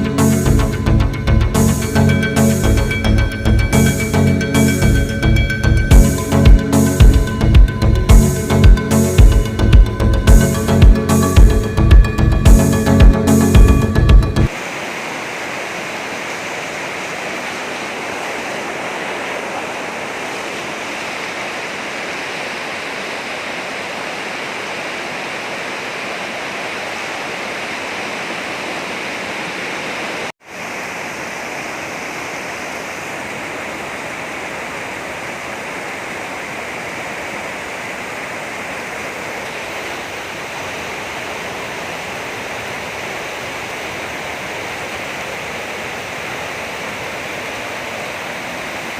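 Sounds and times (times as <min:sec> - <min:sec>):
heavy rain: 0:11.4 - 0:48.9.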